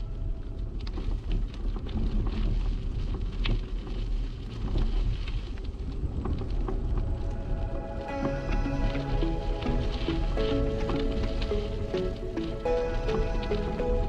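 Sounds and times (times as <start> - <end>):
wind buffeting microphone: 0.0 - 14.0
small clicks and rattles: 0.5 - 7.3
low riding rumble: 4.2 - 14.0.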